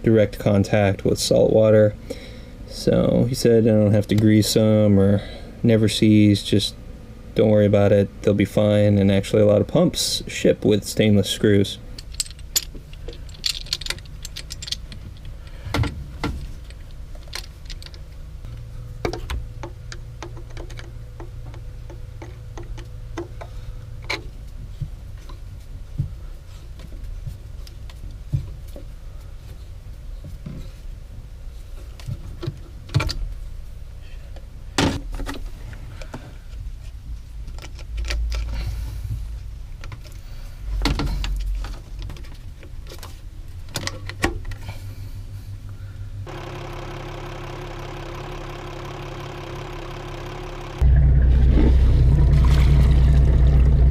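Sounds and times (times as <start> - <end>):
diesel engine idling: 44.7 - 53.9.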